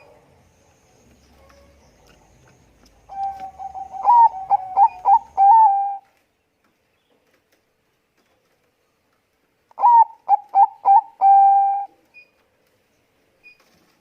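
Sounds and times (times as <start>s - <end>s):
dove cooing: 3.0s - 6.0s, 9.8s - 12.0s.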